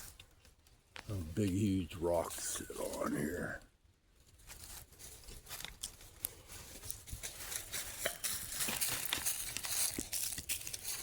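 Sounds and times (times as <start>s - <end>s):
dry leaves crackling: 4.2s - 11.0s.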